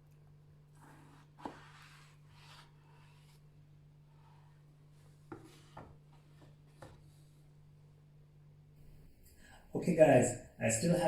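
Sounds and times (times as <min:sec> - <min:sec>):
knife scraping cutting board: 0:00.8 - 0:03.4.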